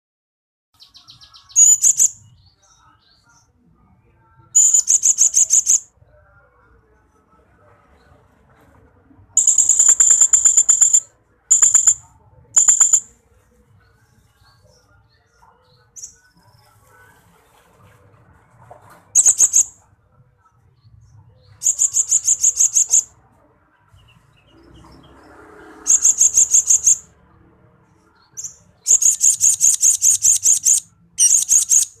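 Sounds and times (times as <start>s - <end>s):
parrot trilling: 9.4s - 12.0s, 12.6s - 13.1s, 28.9s - 32.0s.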